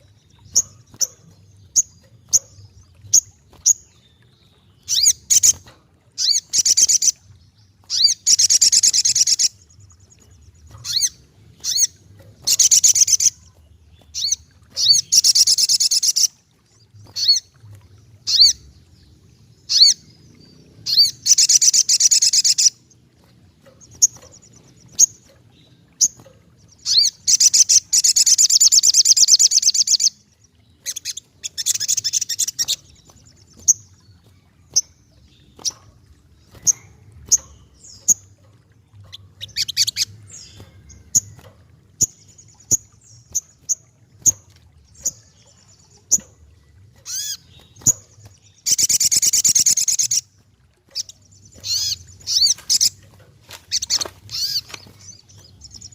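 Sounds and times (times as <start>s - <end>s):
bird sharp chips: 50.9s - 55.9s.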